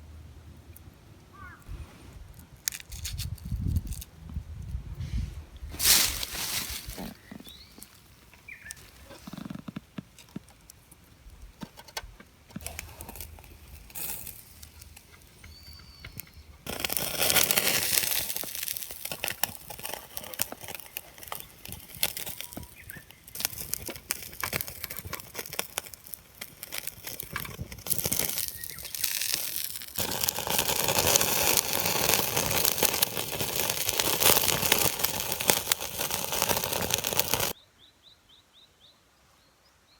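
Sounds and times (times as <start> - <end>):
campfire crackling: 5.6 - 37.6
skewers sizzling on grill: 5.7 - 10.5, 12.5 - 37.6.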